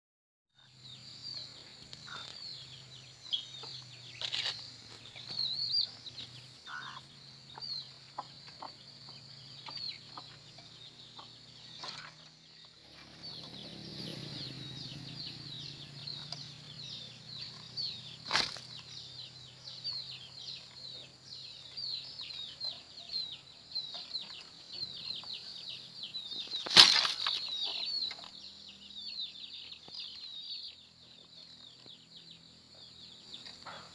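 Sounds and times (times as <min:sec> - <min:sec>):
quail chirping: 0:01.3 - 0:33.9
wings fluttering: 0:17.5 - 0:19.0, 0:26.4 - 0:27.8.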